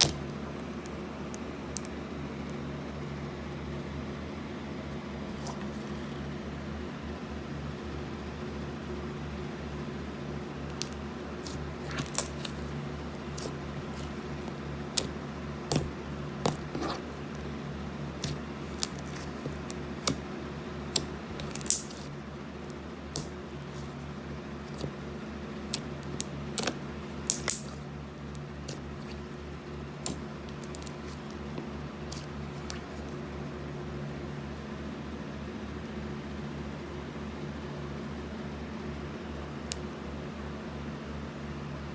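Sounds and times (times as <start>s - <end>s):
sticky slime clicks and squelches: 0.0s - 1.9s, 10.7s - 17.4s, 18.2s - 20.2s, 20.9s - 24.0s, 24.7s - 24.9s, 25.7s - 29.4s, 30.0s - 31.4s, 32.1s - 33.2s
steady background hum: 0.0s - 41.9s.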